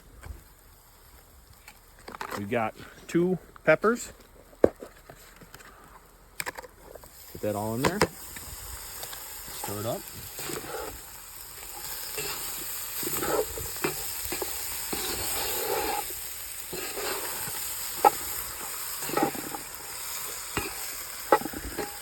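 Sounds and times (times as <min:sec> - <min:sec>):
vegetables sizzling: 0:06.8 - 0:22.0
spoon scraping a pot: 0:11.8 - 0:18.4, 0:19.0 - 0:19.7.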